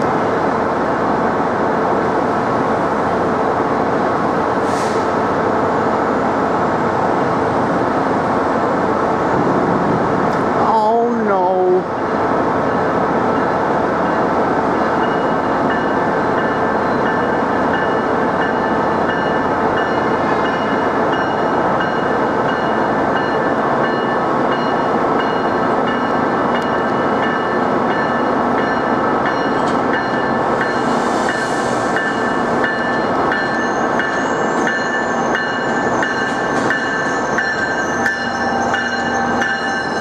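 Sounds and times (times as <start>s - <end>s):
train rumbling: 0.0s - 40.0s
brief hiss: 4.6s - 5.2s.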